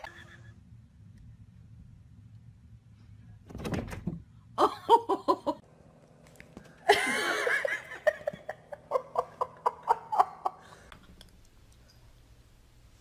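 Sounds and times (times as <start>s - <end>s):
person laughing: 0.0s - 0.6s, 4.6s - 5.6s, 6.8s - 10.9s.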